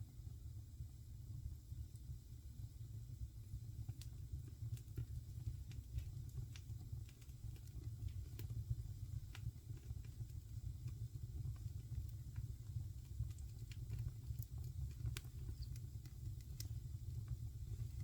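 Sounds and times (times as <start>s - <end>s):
wood fire crackling: 1.7s - 18.0s.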